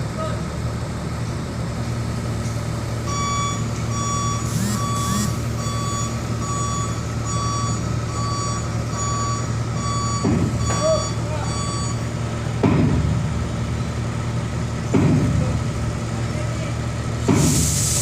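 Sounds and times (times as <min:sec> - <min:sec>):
diesel engine running: 0:00.0 - 0:18.0
reversing alarm beeping: 0:03.0 - 0:12.2
short hisses: 0:17.4 - 0:18.0.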